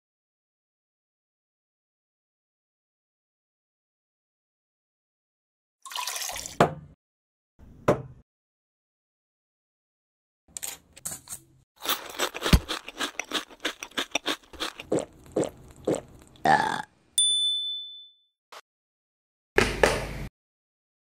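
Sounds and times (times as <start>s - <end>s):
crisp crunching chews: 11.8s - 16.4s
high bell-like ding: 17.2s - 18.3s.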